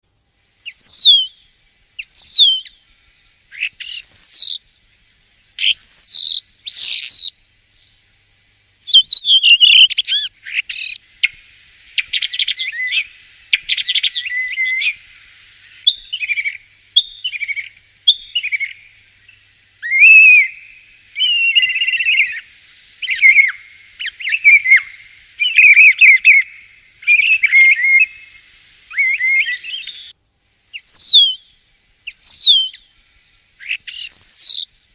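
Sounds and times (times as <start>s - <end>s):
starling singing: 0.7s - 1.3s, 3.6s - 4.6s, 5.6s - 7.3s, 19.8s - 22.4s, 23.0s - 28.3s, 28.9s - 30.2s, 30.8s - 31.4s, 32.1s - 32.8s, 33.6s - 34.7s.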